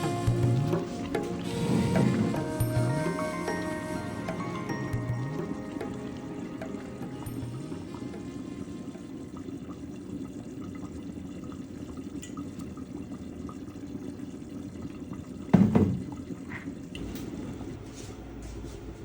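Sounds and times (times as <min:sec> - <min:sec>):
liquid sloshing and bubbling: 0:00.0 - 0:19.0.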